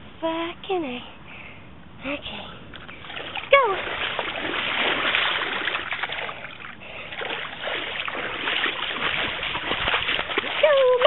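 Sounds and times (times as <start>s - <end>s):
bicycle wheels splashing through puddle: 3.0s - 11.0s.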